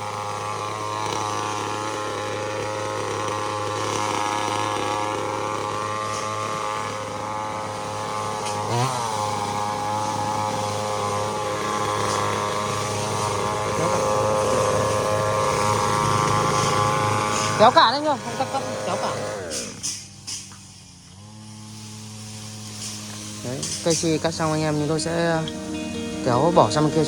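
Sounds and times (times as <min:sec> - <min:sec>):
small petrol engine running: 0:00.0 - 0:27.0.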